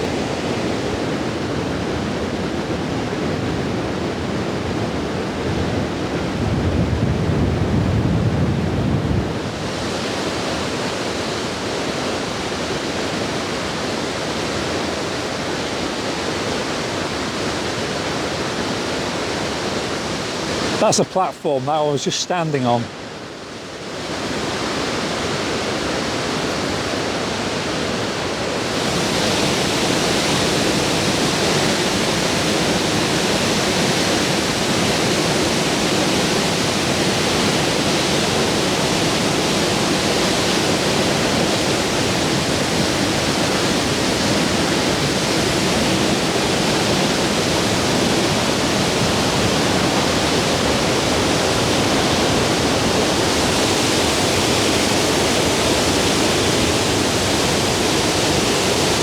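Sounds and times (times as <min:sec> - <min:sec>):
waterfall rushing: 0:17.0 - 0:23.1, 0:25.4 - 0:59.0.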